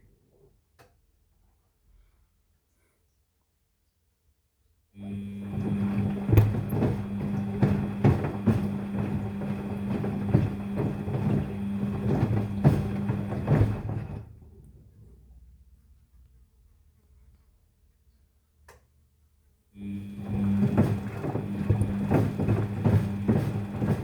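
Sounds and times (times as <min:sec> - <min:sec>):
washing machine motor humming: 0:05.0 - 0:14.7, 0:19.8 - 0:24.0.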